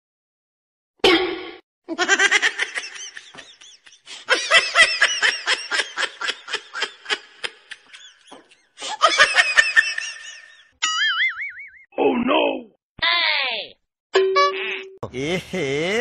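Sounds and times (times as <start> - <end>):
rapid laughter: 1.9 - 10.7.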